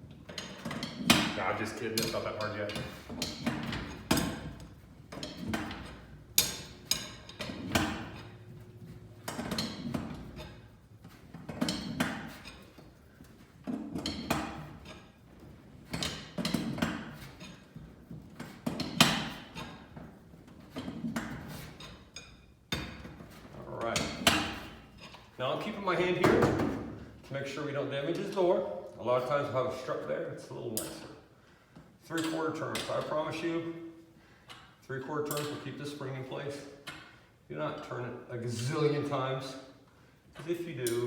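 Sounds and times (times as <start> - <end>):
metal bars clinking in spring cone: 0.2 - 10.7, 11.5 - 12.8.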